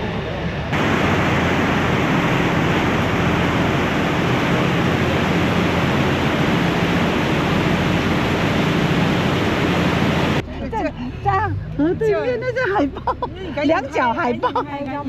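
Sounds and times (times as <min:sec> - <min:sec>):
wind and water rushing: 0:00.7 - 0:10.4
low engine hum: 0:00.7 - 0:13.6.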